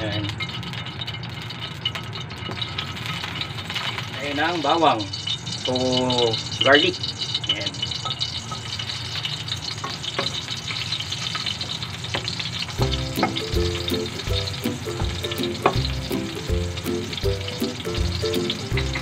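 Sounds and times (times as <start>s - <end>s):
garlic sizzling in hot oil: 0.0s - 19.0s
spatula scraping and tapping pan: 0.4s - 4.0s, 9.6s - 10.5s, 12.1s - 19.0s
background music with low beat: 12.8s - 19.0s.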